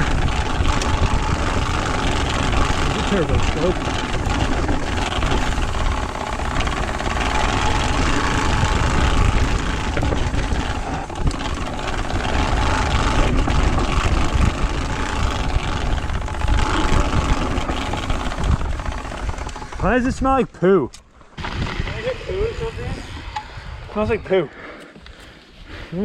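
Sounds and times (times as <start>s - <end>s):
card flapping against bicycle spokes: 0.0s - 20.0s
wind rumble on microphone: 0.0s - 20.3s, 21.4s - 24.4s.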